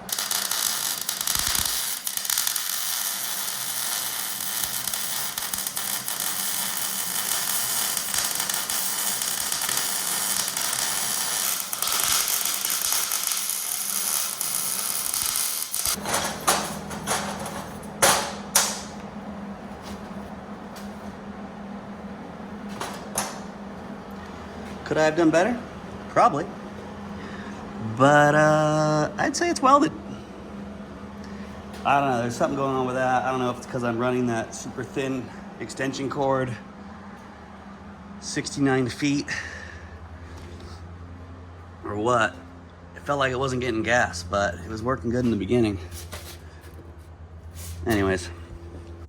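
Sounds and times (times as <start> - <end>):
welding arc crackling and hissing: 0.0 - 18.9.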